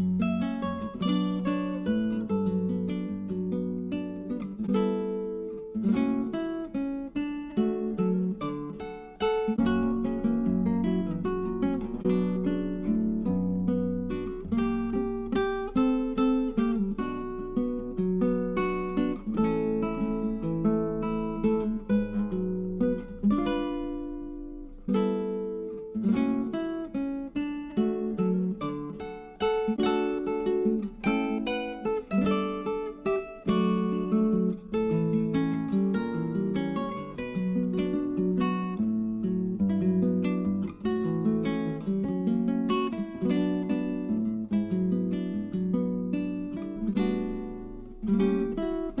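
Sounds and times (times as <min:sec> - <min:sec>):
acoustic guitar music: 0:00.0 - 0:49.0.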